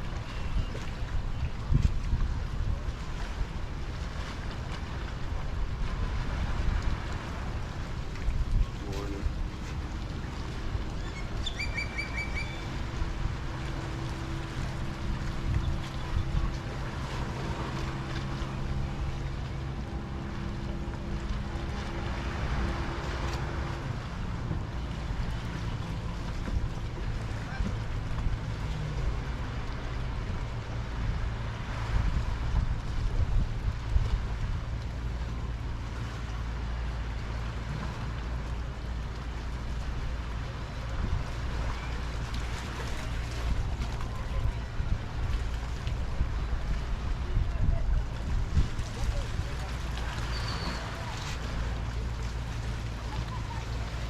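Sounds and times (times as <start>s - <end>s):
wind noise: 0.0s - 13.7s, 42.7s - 49.7s
boat motor humming: 0.0s - 54.0s
lapping waves: 0.0s - 54.0s
wind: 0.0s - 54.0s
water washing: 1.0s - 54.0s.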